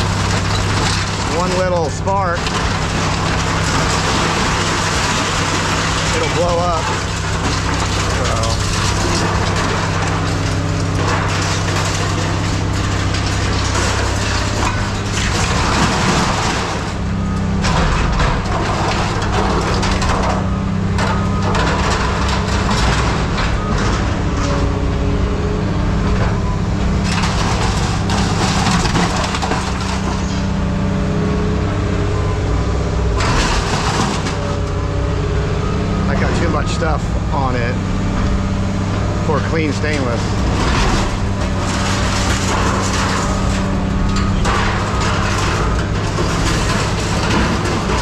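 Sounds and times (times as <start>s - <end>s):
heavy machinery engine running: 0.0s - 48.0s
scrap metal crunching and clanking: 0.0s - 48.0s.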